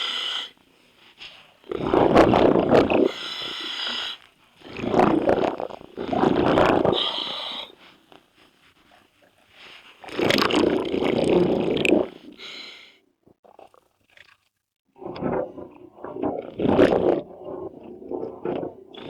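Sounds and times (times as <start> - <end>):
regulator hiss on inhale: 0.0 - 0.6, 3.1 - 4.2, 7.0 - 8.0
exhaled bubbles: 1.6 - 3.5, 4.6 - 7.6, 10.0 - 12.5, 13.4 - 19.0.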